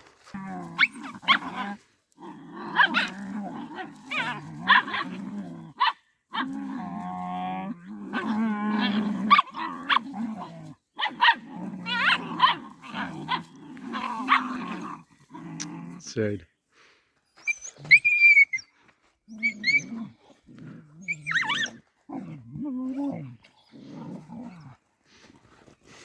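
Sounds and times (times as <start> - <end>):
dogs growling and snarling: 0.2 - 16.1, 19.2 - 26.0
dogs barking and yelping: 0.6 - 1.8, 2.7 - 6.6, 8.1 - 14.8, 17.4 - 18.7, 19.3 - 20.3, 21.0 - 21.8.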